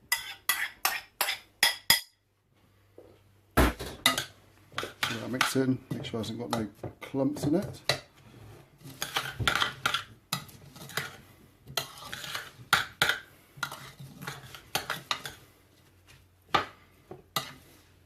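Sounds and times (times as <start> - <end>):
spoon stirring food in a bowl: 0.0 - 2.2, 4.0 - 17.8.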